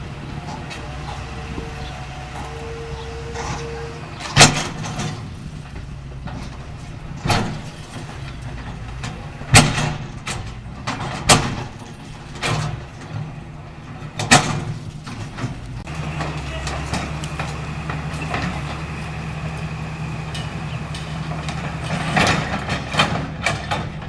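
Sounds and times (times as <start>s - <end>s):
debris crashing and banging: 0.0s - 24.0s
excavator diesel engine running: 0.0s - 24.0s.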